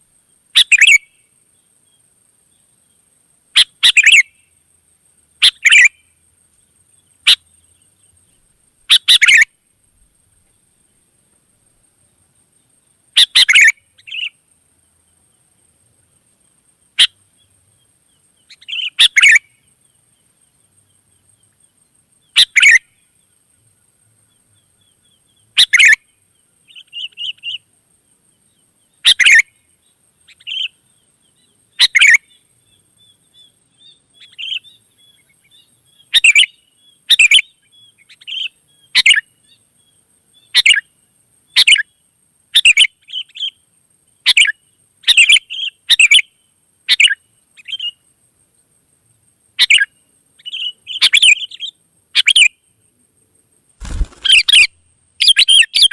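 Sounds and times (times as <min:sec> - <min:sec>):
soft bird chattering: 0:00.6 - 0:01.0, 0:03.6 - 0:04.2, 0:05.4 - 0:06.0, 0:08.9 - 0:09.5, 0:53.8 - 0:55.9
bird calling clear phrases: 0:00.6 - 0:01.2, 0:03.6 - 0:04.4, 0:05.4 - 0:06.1, 0:07.0 - 0:09.5, 0:13.1 - 0:14.4, 0:16.9 - 0:19.7, 0:22.2 - 0:22.9, 0:24.4 - 0:27.7, 0:30.2 - 0:39.6, 0:49.6 - 0:52.7, 0:53.8 - 0:55.9.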